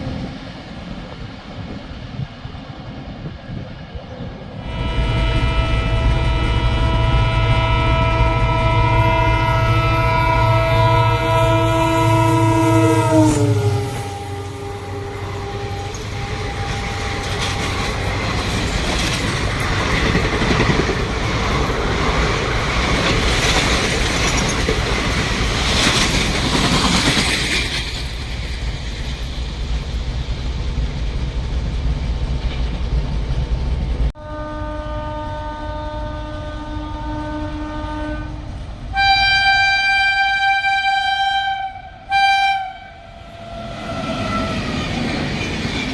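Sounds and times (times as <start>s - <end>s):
train rumbling on rails: 0.0s - 45.9s
locomotive horn blast: 4.6s - 18.4s, 34.2s - 44.9s.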